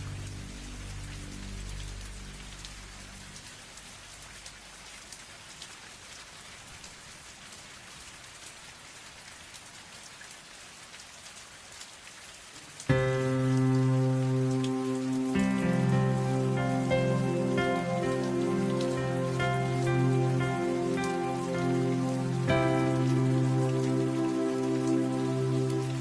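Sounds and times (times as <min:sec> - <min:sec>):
soft music chord: 0:00.0 - 0:03.3, 0:12.9 - 0:26.0
rain falling: 0:00.0 - 0:26.0
raindrops ticking: 0:12.5 - 0:26.0.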